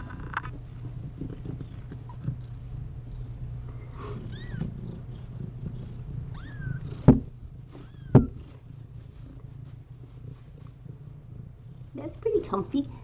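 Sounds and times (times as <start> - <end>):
cat purring: 0.0 - 13.0
kitten mewing: 4.0 - 5.0.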